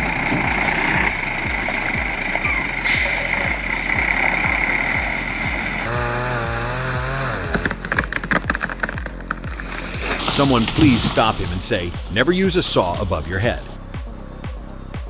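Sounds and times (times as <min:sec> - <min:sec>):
chainsaw engine running: 0:00.0 - 0:10.2
background music with steady beat: 0:00.0 - 0:15.0
motor running: 0:00.1 - 0:10.2.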